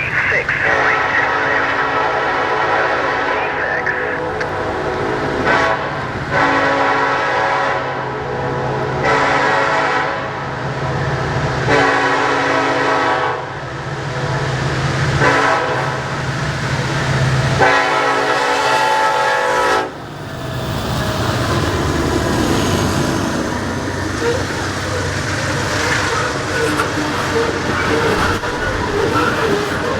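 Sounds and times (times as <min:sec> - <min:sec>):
locomotive horn blasts: 0:00.6 - 0:10.4, 0:11.7 - 0:13.6, 0:15.2 - 0:16.2, 0:17.5 - 0:20.0
locomotive passing drone: 0:07.9 - 0:29.9.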